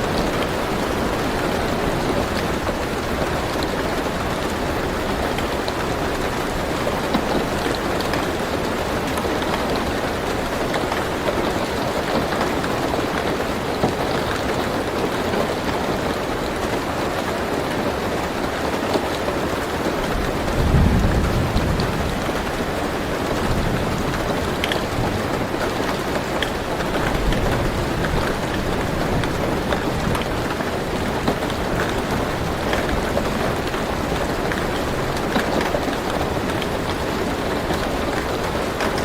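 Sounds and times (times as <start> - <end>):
rain on car roof: 0.0 - 39.0
raindrop ticks: 20.0 - 39.0.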